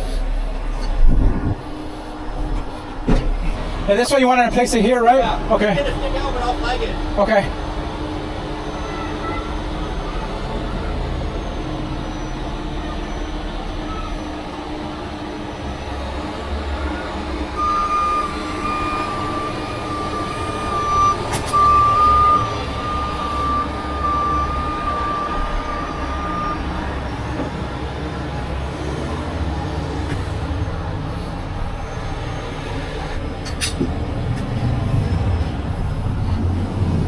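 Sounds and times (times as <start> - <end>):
vehicle engine running: 0.0 - 37.0
reversing alarm beeping: 6.0 - 28.0.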